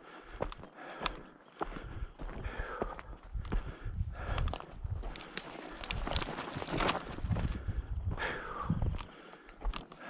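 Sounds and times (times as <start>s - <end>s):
footsteps on rough ground: 0.0s - 10.0s.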